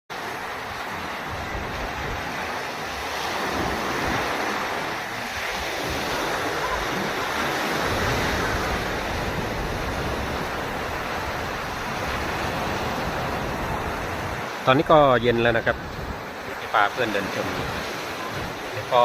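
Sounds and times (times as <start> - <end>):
sea surf washing onto shore: 0.1 - 19.0
wind rumbling on microphone: 0.1 - 19.0.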